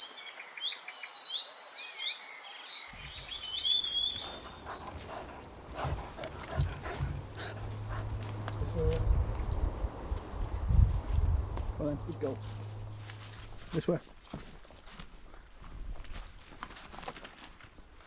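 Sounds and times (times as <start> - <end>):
songbirds singing: 0.0 - 13.6
low rumble: 4.2 - 13.7
rustles and knocks: 4.2 - 13.8.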